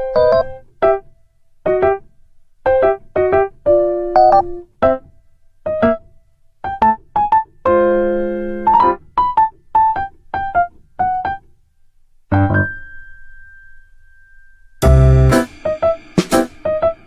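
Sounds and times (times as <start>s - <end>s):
electric piano notes: 0.0s - 1.0s, 12.3s - 13.1s, 14.8s - 17.0s
thin high tone: 13.0s - 17.0s.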